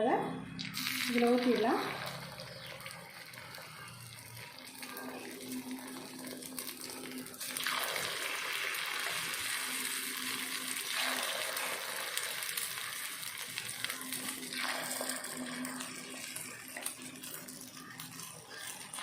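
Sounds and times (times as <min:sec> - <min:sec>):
batter sizzling in hot oil: 0:00.6 - 0:19.0.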